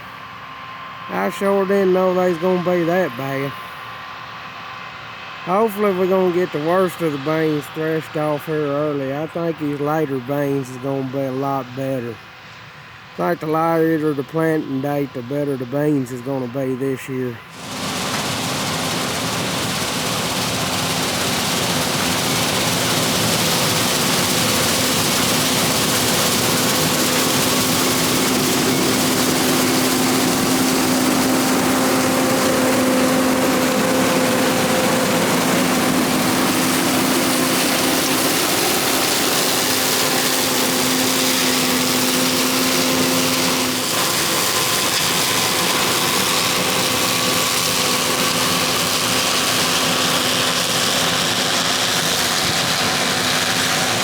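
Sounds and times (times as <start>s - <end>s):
combine harvester droning: 0.0s - 54.0s.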